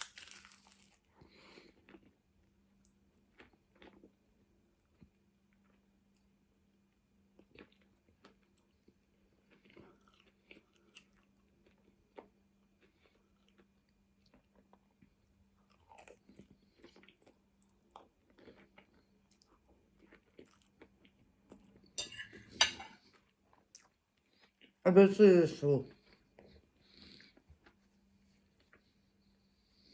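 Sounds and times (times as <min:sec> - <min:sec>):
food crunch: 0:00.0 - 0:02.2
person chewing food: 0:00.0 - 0:24.8, 0:25.9 - 0:29.9.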